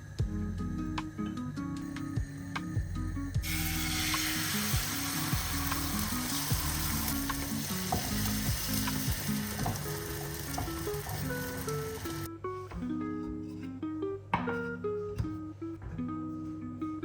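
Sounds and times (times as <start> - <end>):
egg frying in oil: 3.4 - 12.3.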